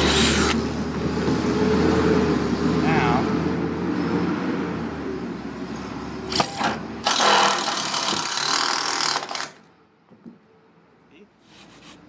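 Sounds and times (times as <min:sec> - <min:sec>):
power drill driving screw: 0:06.3 - 0:09.6.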